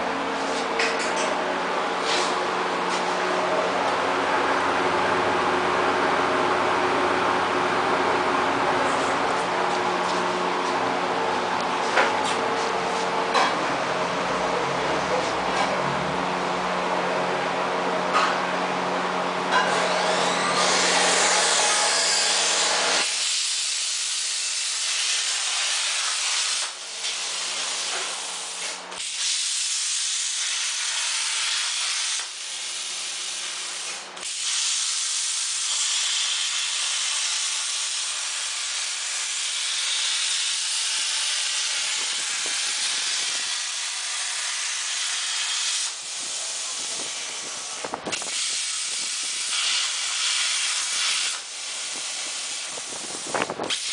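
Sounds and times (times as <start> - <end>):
plasma cutter hissing: 23.0 - 53.9.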